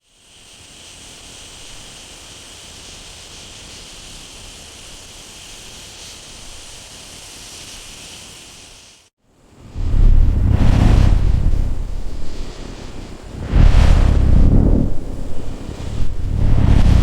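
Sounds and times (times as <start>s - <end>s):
low background rumble: 9.7s - 17.0s.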